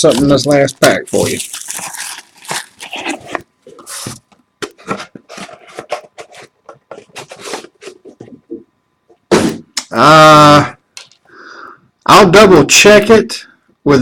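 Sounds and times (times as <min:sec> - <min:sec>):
cardboard and plastic rustling: 0:00.0 - 0:08.6.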